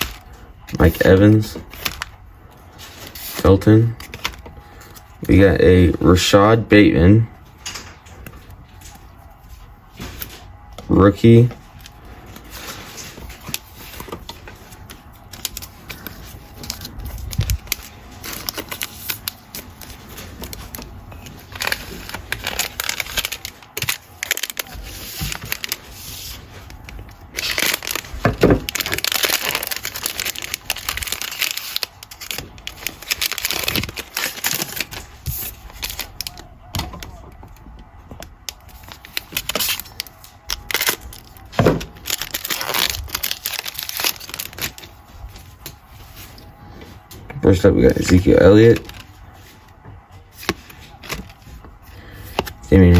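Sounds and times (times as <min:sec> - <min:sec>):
wrapper tearing and crinkling: 0:12.3 - 0:37.1, 0:38.4 - 0:46.4, 0:48.0 - 0:49.4
cards being handled: 0:48.0 - 0:52.9.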